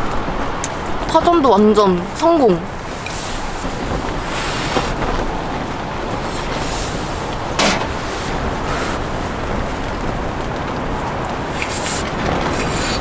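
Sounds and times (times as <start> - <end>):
strong wind buffeting: 0.1 - 13.0
short clack: 7.6 - 8.4.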